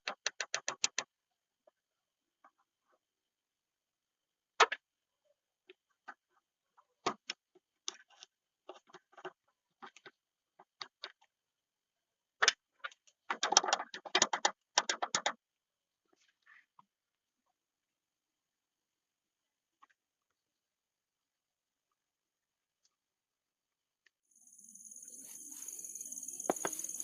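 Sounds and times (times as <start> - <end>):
clicks and knocks of small parts: 0.0 - 1.1, 12.4 - 15.4.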